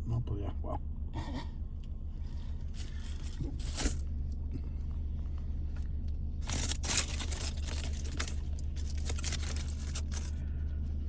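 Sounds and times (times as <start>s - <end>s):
low hum inside car: 0.0s - 11.0s
wrapper crinkling: 6.4s - 10.3s
crunching while eating: 6.4s - 10.5s.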